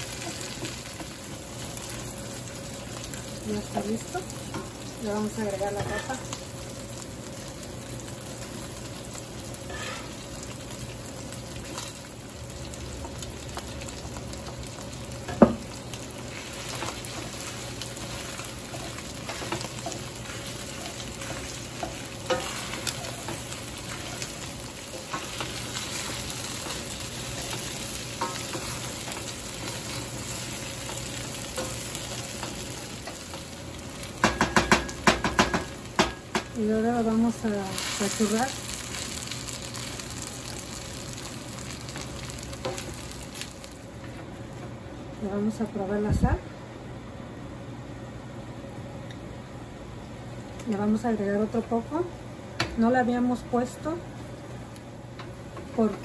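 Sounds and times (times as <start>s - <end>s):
food sizzling in a pan: 0.0s - 44.5s
wooden spoon scraping a pan: 9.7s - 10.2s, 16.3s - 24.3s.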